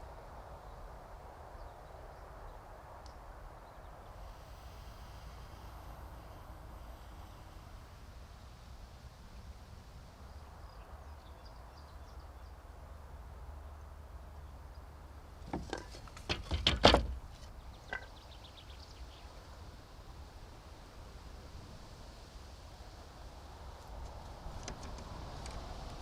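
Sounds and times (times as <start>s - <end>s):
low steady rumble: 3.9s - 22.0s
knocks and clatters: 15.4s - 18.1s.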